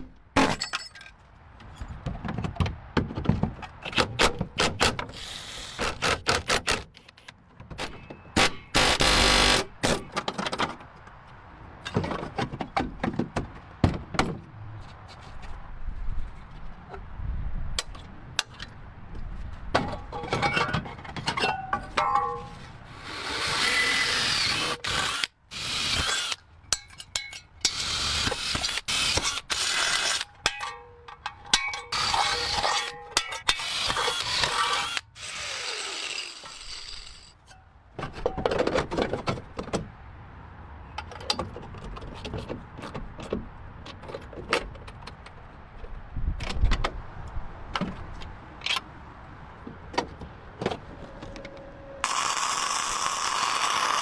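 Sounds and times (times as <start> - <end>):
power tool rushing: 8.4 - 10.0, 23.0 - 26.4, 31.9 - 32.9, 33.5 - 37.3, 52.0 - 54.0
metallic tool clicks and clanks: 26.0 - 35.0.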